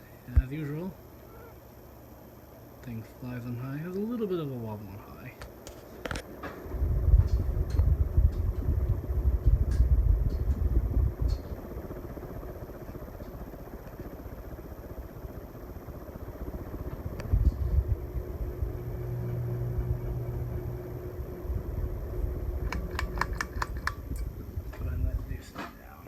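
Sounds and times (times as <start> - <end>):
ceiling fan motor hum: 0.0 - 26.0
low rumble: 6.7 - 12.8, 15.2 - 23.2.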